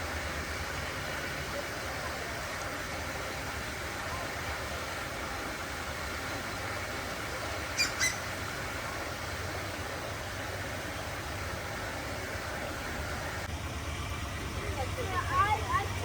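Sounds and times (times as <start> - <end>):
sharp bird chirps: 7.8 - 8.2.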